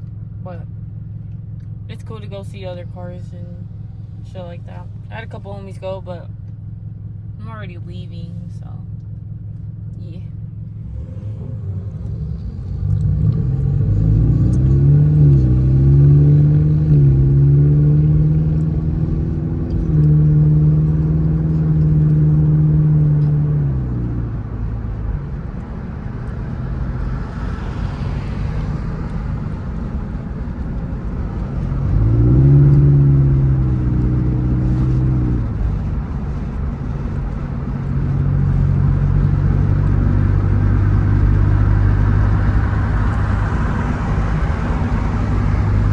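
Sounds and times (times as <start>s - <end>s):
car engine shifting through gears: 0.0s - 45.9s.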